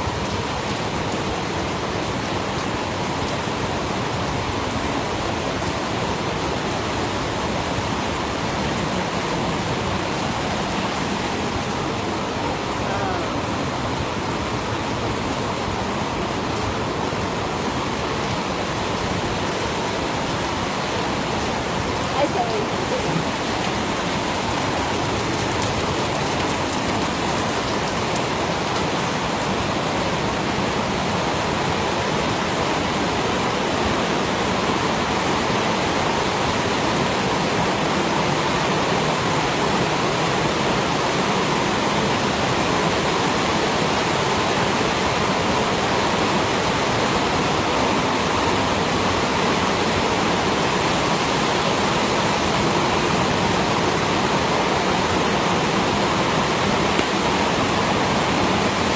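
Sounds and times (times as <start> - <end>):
waterfalls and rushing river: 0.0 - 58.9.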